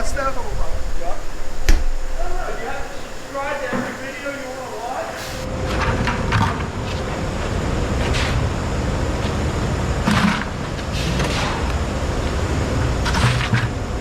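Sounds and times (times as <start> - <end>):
engine rumbling: 0.0 - 5.7.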